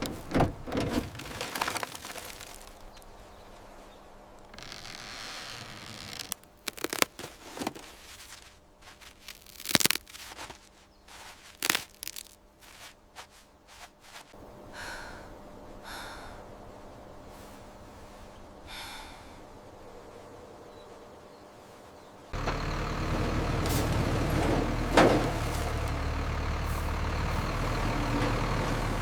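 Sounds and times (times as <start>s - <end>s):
scraping rasps: 0.0s - 3.1s, 22.4s - 29.0s.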